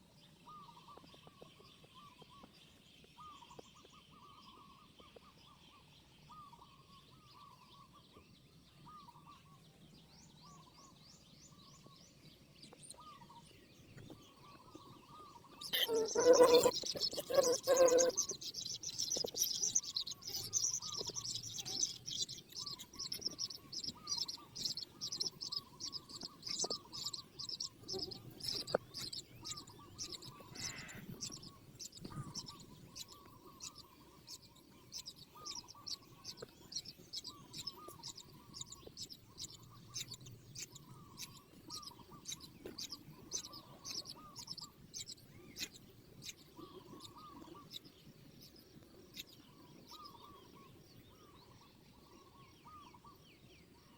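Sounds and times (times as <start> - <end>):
small birds chirping: 0.0 - 53.9
lower bird call: 15.6 - 21.9, 29.4 - 31.5.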